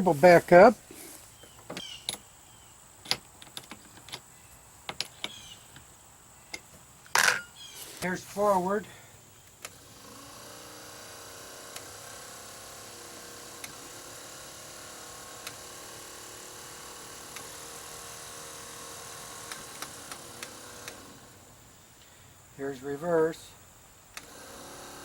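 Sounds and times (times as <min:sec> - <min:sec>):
electric motor humming: 0:09.6 - 0:21.7, 0:24.2 - 0:25.0.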